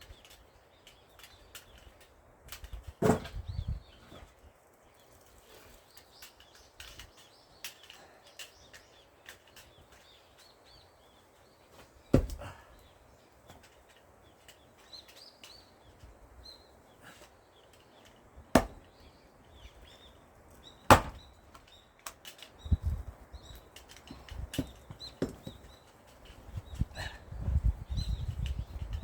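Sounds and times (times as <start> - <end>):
axe chopping firewood: 3.0 - 3.4, 12.1 - 12.6, 18.5 - 18.9, 20.8 - 21.4
light knocks and thuds: 12.1 - 12.6, 18.5 - 18.9, 20.9 - 21.3.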